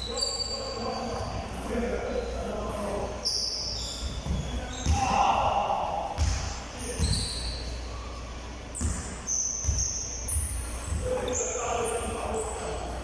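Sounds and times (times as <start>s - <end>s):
sneaker squeaks: 0.0s - 5.5s, 6.2s - 13.0s
basketballs bouncing on court: 4.0s - 5.4s, 6.2s - 7.4s, 8.8s - 11.3s.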